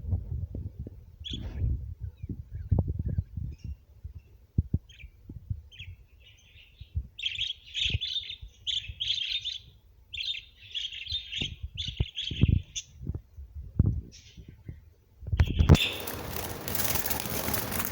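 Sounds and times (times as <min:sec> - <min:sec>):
budgerigars chattering: 0:15.5 - 0:17.9.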